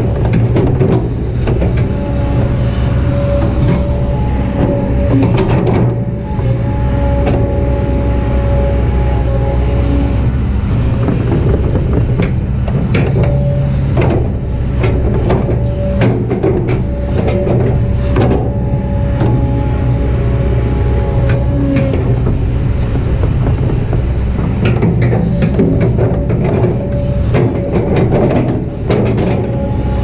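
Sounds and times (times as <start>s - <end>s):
excavator bucket knocks and clanks: 0.0s - 2.5s, 3.2s - 6.2s, 11.0s - 19.6s, 21.2s - 30.0s
diesel engine running under load: 0.0s - 30.0s
hydraulic whine: 0.0s - 30.0s.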